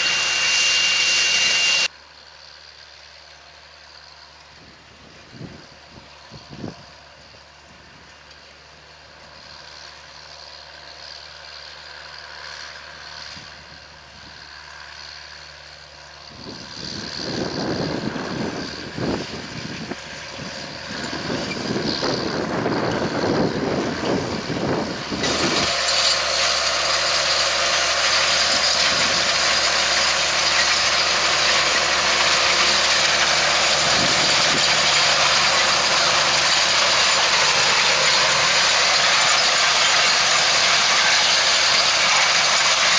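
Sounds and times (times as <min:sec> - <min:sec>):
seed drill running: 0:00.0 - 0:01.9, 0:16.4 - 0:42.9
tractor diesel engine under load: 0:00.0 - 0:42.9.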